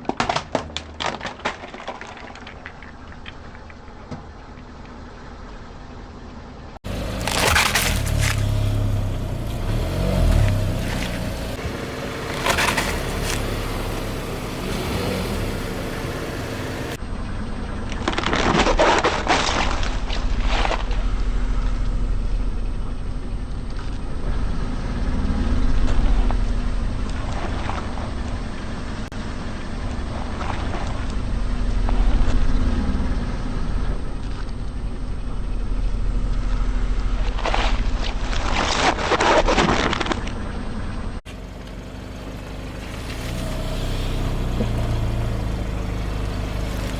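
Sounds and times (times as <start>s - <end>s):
tyres crunching objects: 0.0s - 4.4s, 6.8s - 15.2s, 17.9s - 21.6s, 37.1s - 41.8s
car running: 0.0s - 46.9s.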